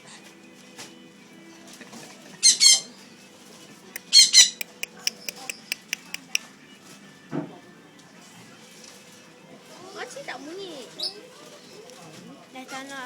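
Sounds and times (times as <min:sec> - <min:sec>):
cockatiel chirping: 0:04.2 - 0:06.4.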